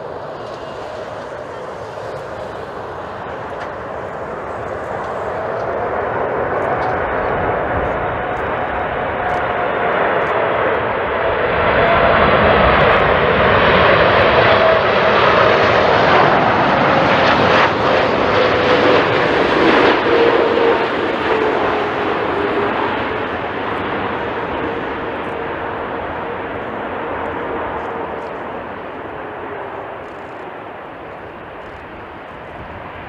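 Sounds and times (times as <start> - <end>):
jet airliner passing overhead: 0.0 - 33.0.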